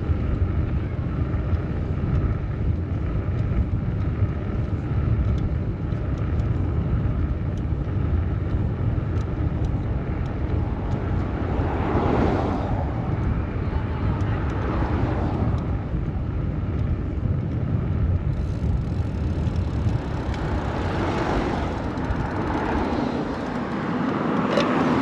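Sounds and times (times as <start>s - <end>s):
city road traffic rumble: 0.0s - 25.0s
wind: 0.0s - 25.0s
vehicle passing close: 9.7s - 25.0s.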